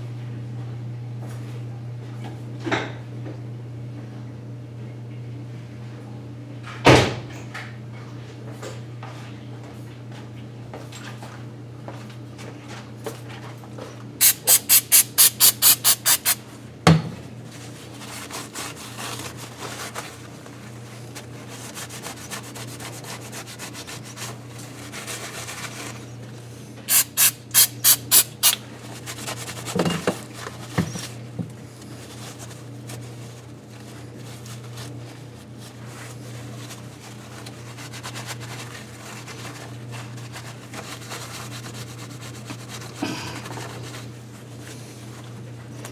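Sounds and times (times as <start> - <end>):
quick loud hissing strokes: 14.2 - 16.4, 26.9 - 28.6.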